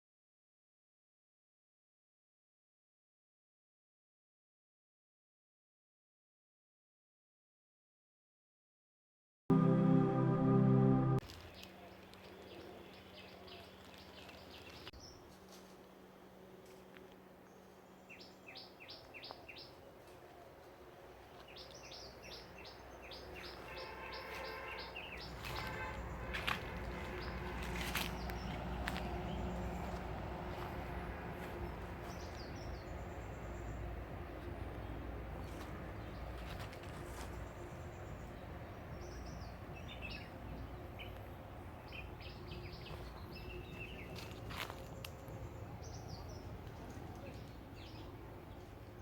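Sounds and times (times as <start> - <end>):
songbirds chirping: 11.2 - 49.0.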